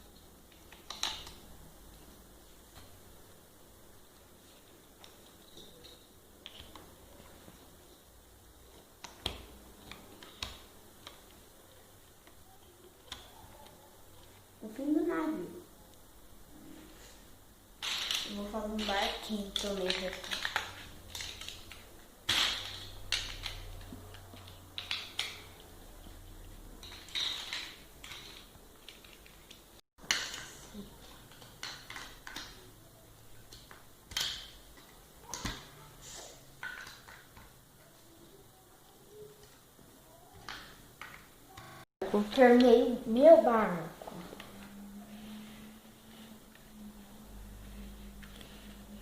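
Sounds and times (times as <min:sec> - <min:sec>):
toy blocks clicking together: 0:00.5 - 0:01.4, 0:17.8 - 0:25.6, 0:26.8 - 0:32.7, 0:33.5 - 0:35.6, 0:36.6 - 0:37.5.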